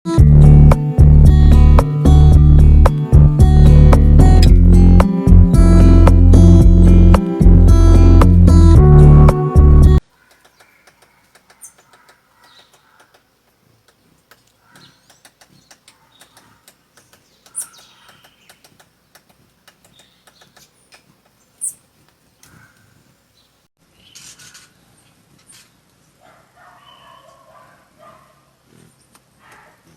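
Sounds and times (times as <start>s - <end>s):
acoustic guitar music: 0.1s - 10.0s
woodpecker pecking wood: 10.1s - 21.4s
high bird chirps: 10.2s - 13.1s, 14.6s - 18.8s, 19.8s - 21.8s.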